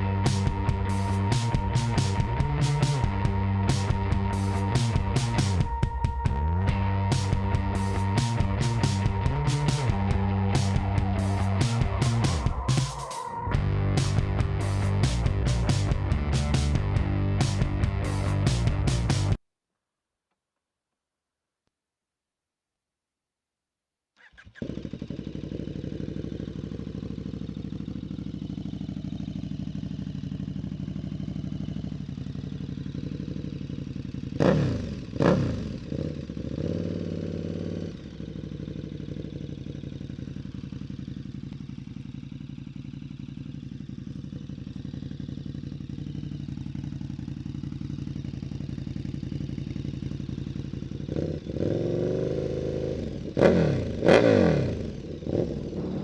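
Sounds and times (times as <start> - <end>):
throttle blips: 0.0 - 19.1
motorcycle engine idling: 0.0 - 19.4, 24.2 - 56.0.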